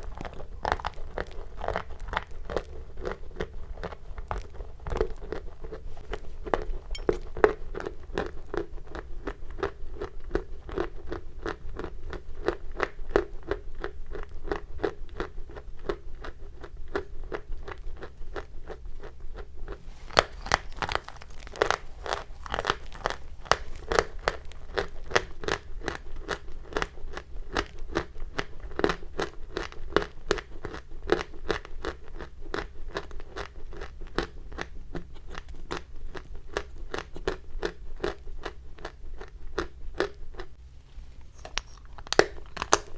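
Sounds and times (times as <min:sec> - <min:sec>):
chalk crunching: 0:19.8 - 0:25.4.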